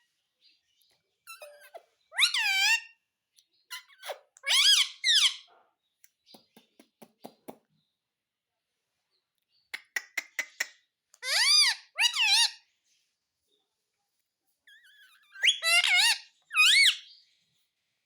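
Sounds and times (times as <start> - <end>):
parrot shrill calls: 1.3 - 3.0, 3.7 - 5.5, 11.2 - 12.6, 14.7 - 17.1.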